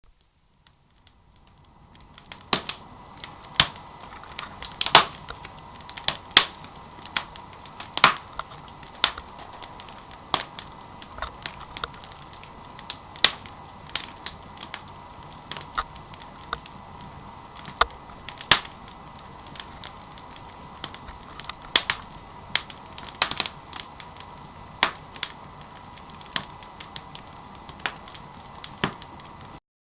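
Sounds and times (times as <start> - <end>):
low fire hiss: 0.0 - 29.6
campfire crackling and popping: 0.1 - 29.6.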